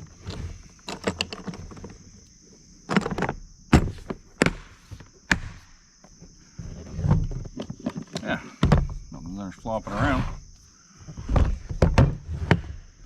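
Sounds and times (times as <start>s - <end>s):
plastic case knocks and clatter: 7.1s - 9.1s, 11.1s - 12.2s.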